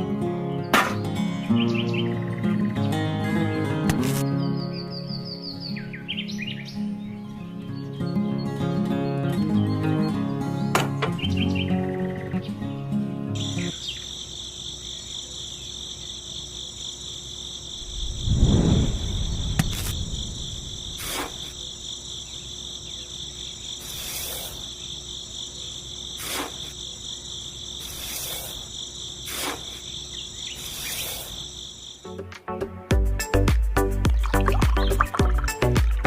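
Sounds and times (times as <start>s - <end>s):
crickets trilling: 0.0s - 32.2s, 34.2s - 36.0s
low rumble: 17.8s - 21.0s.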